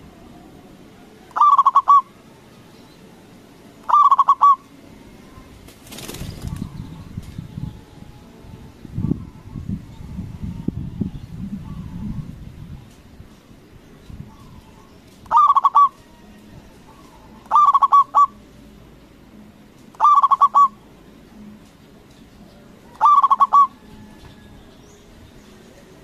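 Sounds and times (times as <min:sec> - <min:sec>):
dove cooing: 0:01.0 - 0:02.2, 0:03.8 - 0:04.7, 0:14.3 - 0:18.4, 0:19.9 - 0:20.8, 0:22.8 - 0:24.6.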